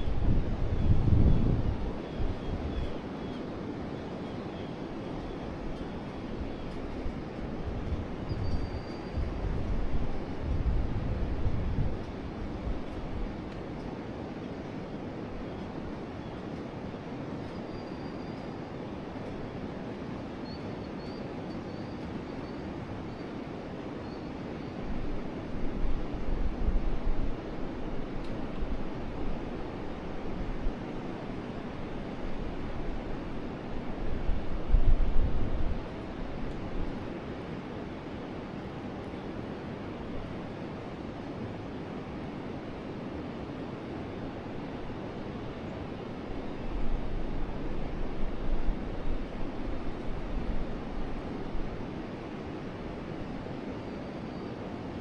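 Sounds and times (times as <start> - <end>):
wind buffeting microphone: 0.0 - 3.0, 6.4 - 13.5
faint bird chirps: 8.3 - 9.2, 17.4 - 18.6, 20.4 - 23.3.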